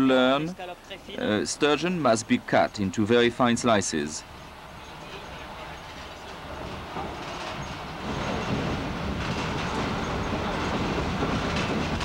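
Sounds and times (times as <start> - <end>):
moving train running noise: 1.0 - 12.0.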